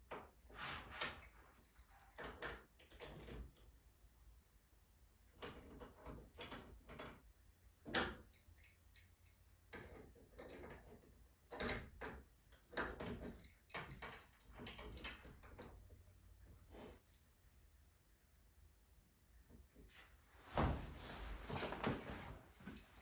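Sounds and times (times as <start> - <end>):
metal clinks and knocks: 21.0 - 23.0.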